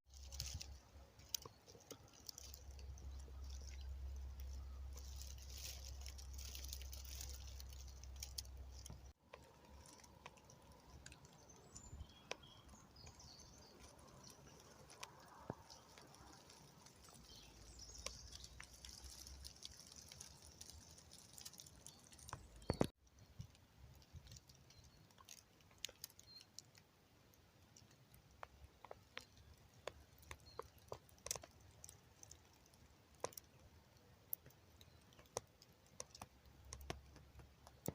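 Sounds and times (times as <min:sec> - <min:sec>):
faint clicks and crackles: 0:00.0 - 0:37.9.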